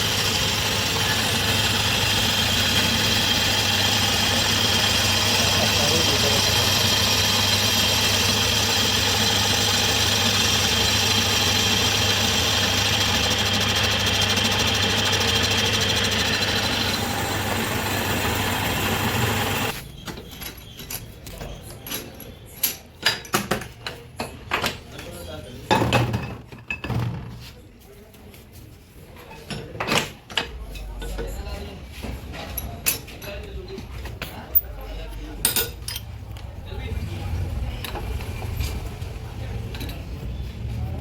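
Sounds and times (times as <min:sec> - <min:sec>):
boring machine humming: 0:00.0 - 0:19.8
machine high whine: 0:00.0 - 0:19.8.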